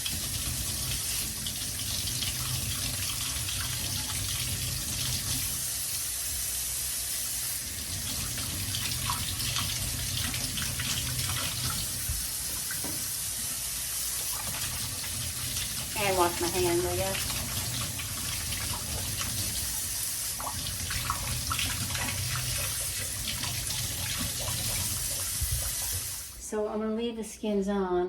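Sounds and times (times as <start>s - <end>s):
tap running into a sink: 7.8s - 13.6s, 17.1s - 26.3s.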